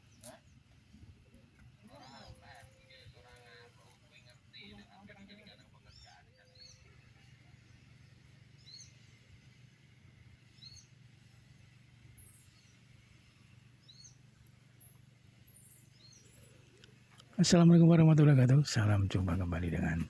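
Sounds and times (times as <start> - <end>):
low steady hum: 0.0 - 20.0
small bird chirping: 5.8 - 9.4, 10.4 - 17.1.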